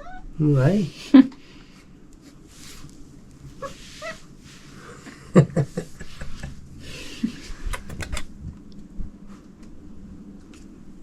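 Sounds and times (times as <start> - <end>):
cat calling: 0.0 - 0.3, 3.6 - 4.3
rustling: 2.2 - 5.0.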